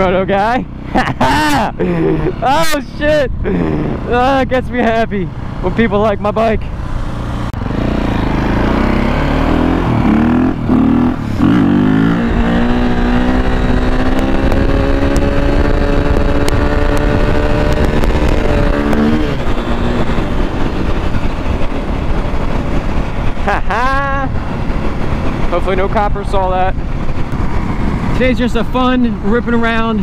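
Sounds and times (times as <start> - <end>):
motorcycle engine revving: 0.0 - 30.0
wind on microphone: 6.6 - 30.0.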